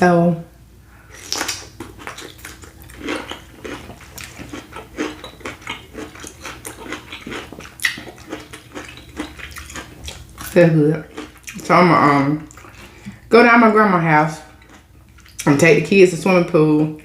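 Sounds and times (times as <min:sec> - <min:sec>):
chewing and lip smacking: 0:01.1 - 0:11.7, 0:12.4 - 0:13.2, 0:14.5 - 0:15.6.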